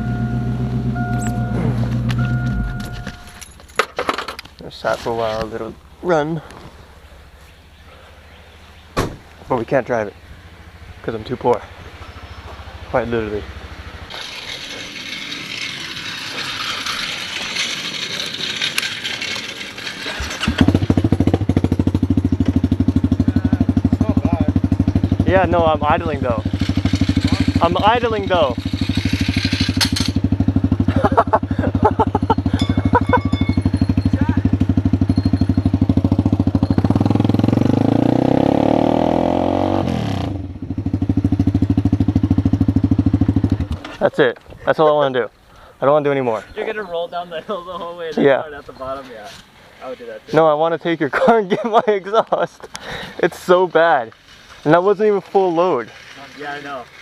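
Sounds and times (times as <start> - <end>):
motorcycle engine idling: 9.9 - 37.4, 40.5 - 44.0.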